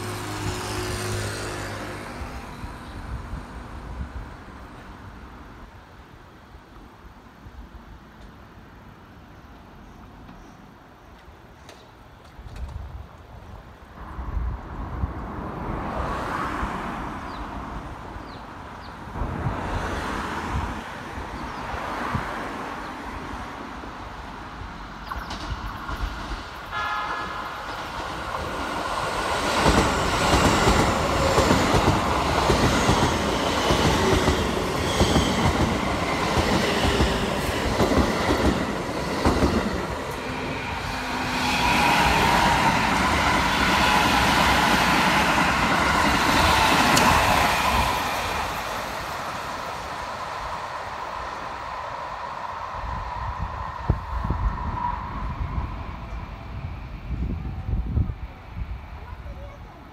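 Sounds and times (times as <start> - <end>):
second train passing: 0.0 - 59.9
train horn blast: 26.6 - 27.6.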